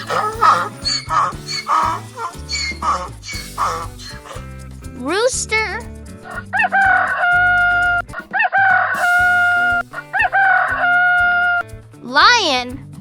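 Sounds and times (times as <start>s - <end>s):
rooster crowing: 9.0s - 11.2s.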